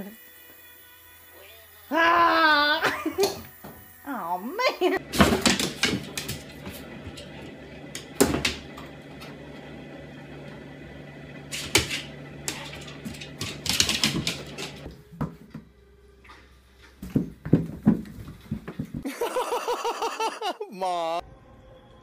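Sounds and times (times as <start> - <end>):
sharp knocks and clatters: 5.0 - 8.9.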